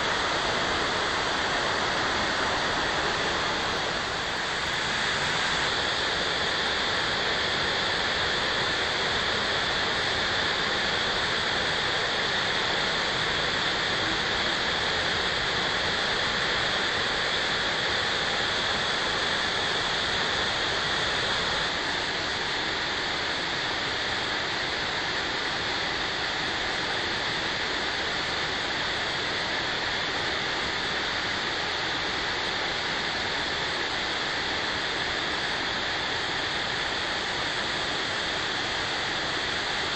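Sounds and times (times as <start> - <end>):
waterfall rushing: 0.0 - 17.4.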